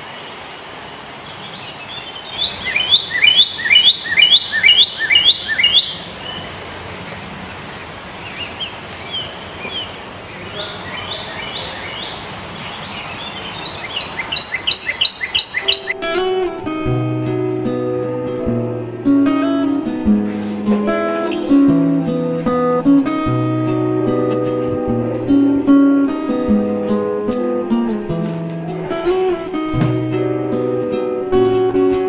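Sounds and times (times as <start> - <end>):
outdoor background noise: 0.0 - 32.0
bird calling sharp notes: 1.9 - 6.6, 7.2 - 16.0.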